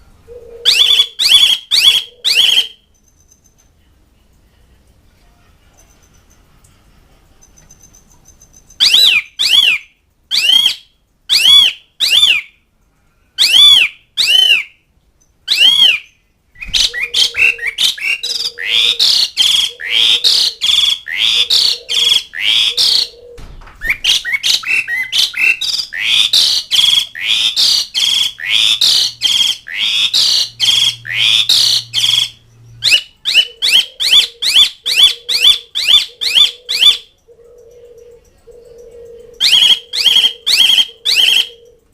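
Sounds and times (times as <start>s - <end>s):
starling calling: 0.3s - 3.4s, 7.5s - 12.6s, 13.4s - 14.8s, 15.5s - 41.9s
harsh bird chattering: 16.6s - 41.8s.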